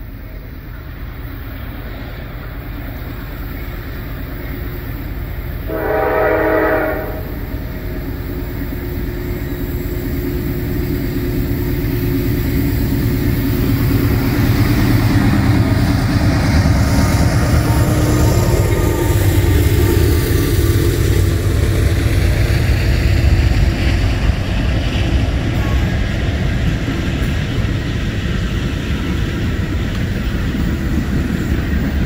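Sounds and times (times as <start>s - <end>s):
diesel locomotive engine rumble: 0.0s - 32.0s
train horn blast: 5.6s - 8.0s, 17.2s - 20.4s.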